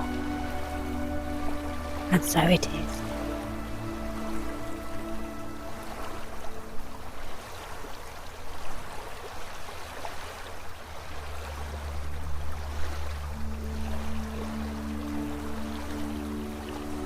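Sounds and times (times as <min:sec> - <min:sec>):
soft ambient music: 0:00.0 - 0:17.0
stream water trickling: 0:00.0 - 0:17.0.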